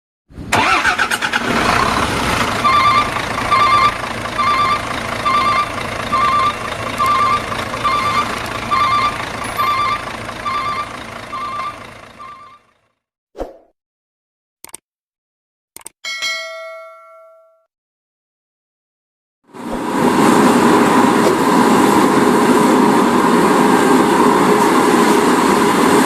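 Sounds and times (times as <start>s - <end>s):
heavy truck engine under load: 0.4s - 12.9s, 19.5s - 26.0s
electronic beeper: 2.6s - 12.6s.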